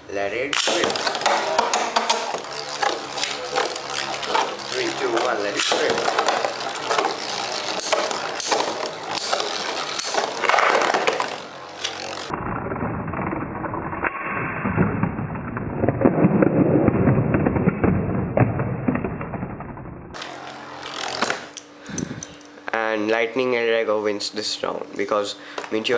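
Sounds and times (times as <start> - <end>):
spinning tops clicking together: 0.5 - 12.3
spinning tops whirring: 0.6 - 12.4, 20.1 - 22.5.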